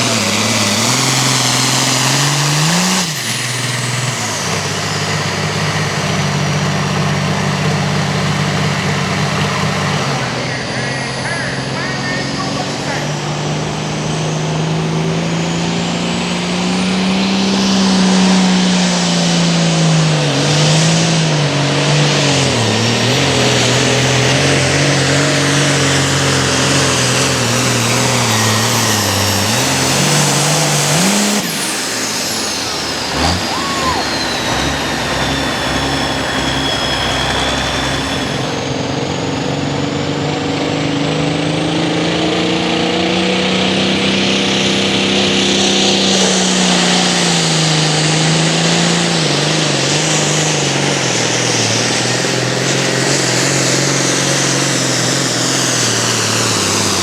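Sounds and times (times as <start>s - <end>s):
tractor diesel engine under load: 0.0s - 57.0s
high whine: 23.5s - 39.7s.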